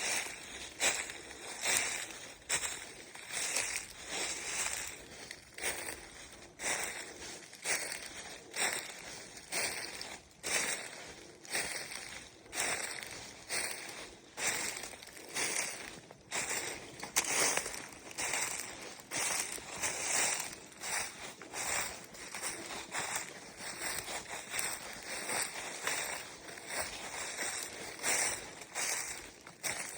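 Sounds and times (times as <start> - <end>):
footsteps on rough vegetated ground: 0.0 - 29.9.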